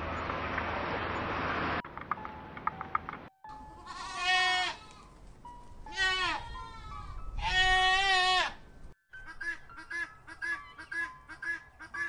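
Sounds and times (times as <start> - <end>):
animal bleating: 3.8 - 5.1, 5.9 - 8.6.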